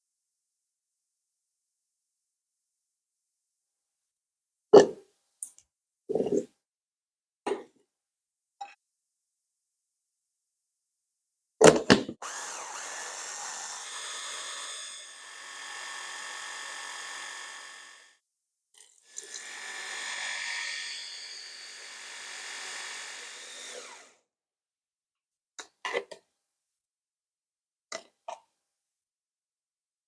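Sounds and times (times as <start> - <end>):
blender sharp clicks: 11.8 - 18.1, 19.0 - 24.2
blender motor running: 12.2 - 18.2, 18.8 - 24.2.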